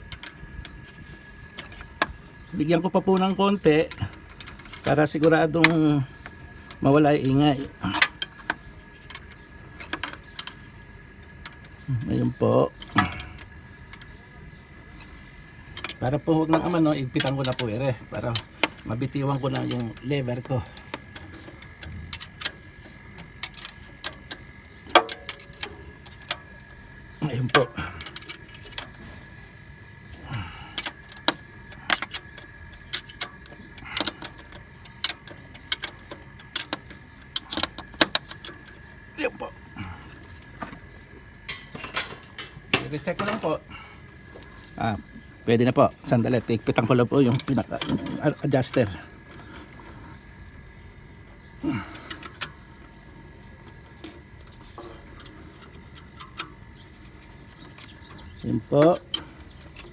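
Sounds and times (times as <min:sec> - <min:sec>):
metallic clicks of wrench and tools: 0:20.8 - 0:26.5, 0:27.5 - 0:29.0, 0:30.8 - 0:38.8, 0:52.0 - 0:52.9, 0:54.0 - 0:56.7.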